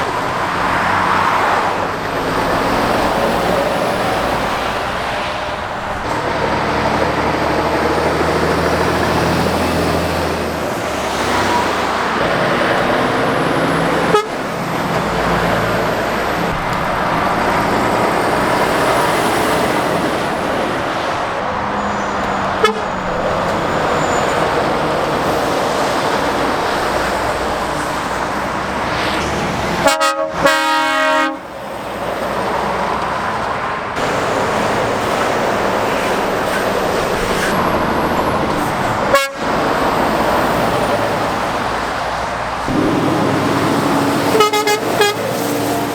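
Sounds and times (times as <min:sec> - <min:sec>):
heavy traffic passing: 0:00.0 - 0:45.9
vehicle horn: 0:14.0 - 0:14.4, 0:22.6 - 0:23.0, 0:29.8 - 0:31.5, 0:39.1 - 0:39.5, 0:44.2 - 0:45.3.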